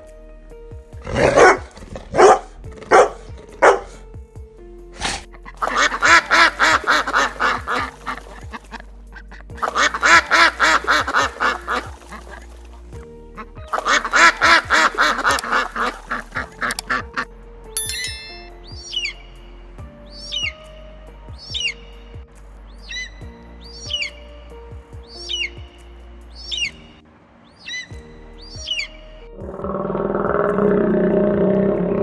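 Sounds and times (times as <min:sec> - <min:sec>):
animal calls: 0:09.6 - 0:12.5.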